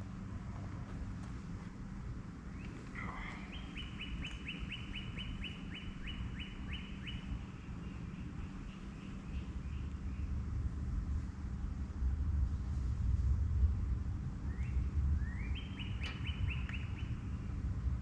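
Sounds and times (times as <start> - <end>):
bird whistling song: 2.5 - 10.3, 14.5 - 17.5.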